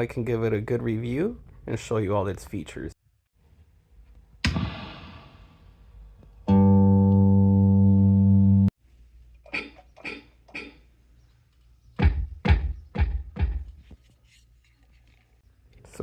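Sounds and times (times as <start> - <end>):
electronic drum hits: 12.0 - 13.7.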